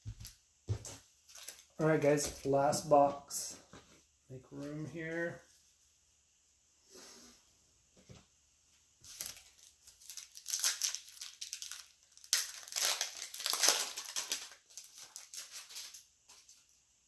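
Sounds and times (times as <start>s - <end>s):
plastic wrapping crinkling and tearing: 1.2s - 2.5s, 9.0s - 16.7s.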